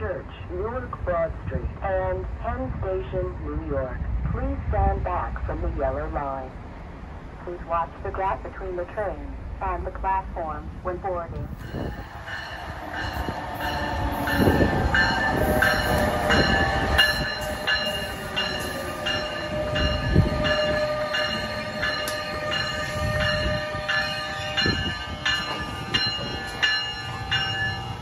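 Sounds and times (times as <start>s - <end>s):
electric train pulling in: 11.4s - 28.0s
bell ringing: 11.6s - 28.0s.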